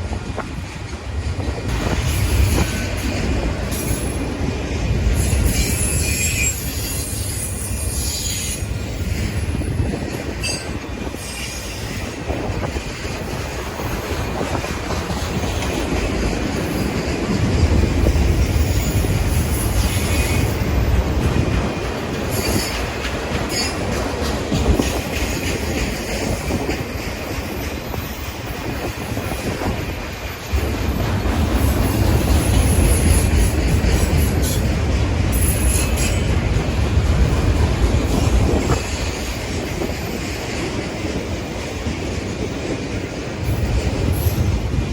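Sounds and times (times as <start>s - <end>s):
freight train rumbling: 0.0s - 44.9s
steel wheels squealing: 5.2s - 12.1s, 18.2s - 21.0s, 22.2s - 23.9s, 35.3s - 36.4s.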